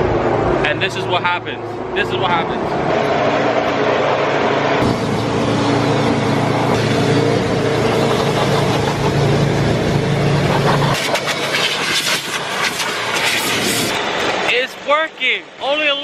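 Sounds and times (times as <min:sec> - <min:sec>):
blower blasting: 0:02.8 - 0:14.6.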